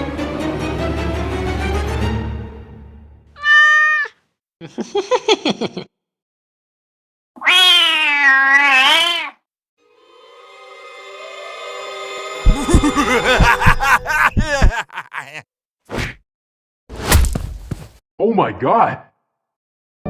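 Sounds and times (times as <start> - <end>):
background music: 0.0 - 3.3, 9.8 - 14.6
cat meowing: 3.4 - 4.2, 7.4 - 9.4.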